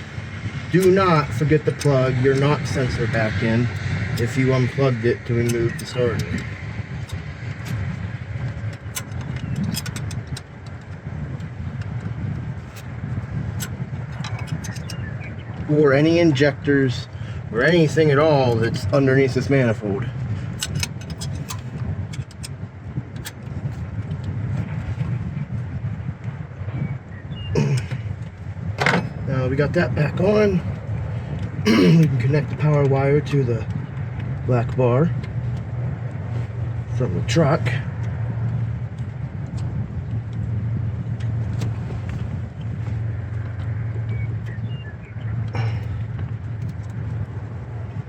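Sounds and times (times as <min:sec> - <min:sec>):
low background rumble: 0:00.0 - 0:48.0
hand tools and metal parts clicking: 0:08.5 - 0:11.0, 0:13.6 - 0:15.0, 0:20.5 - 0:22.6, 0:28.8 - 0:29.2.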